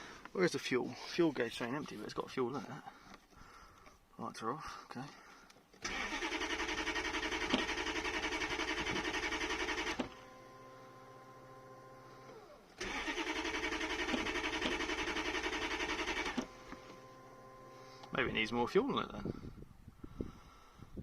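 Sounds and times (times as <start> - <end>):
engine cranking on starter: 5.8 - 18.4.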